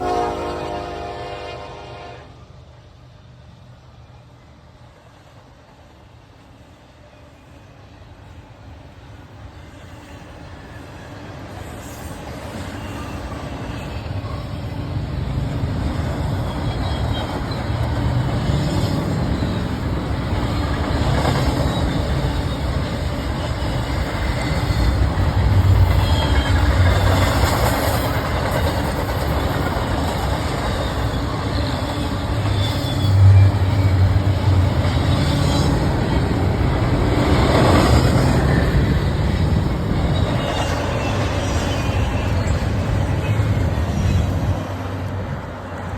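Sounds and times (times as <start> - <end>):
train wheels rumbling on rails: 0.0 - 45.9
train car clatter: 11.6 - 45.9.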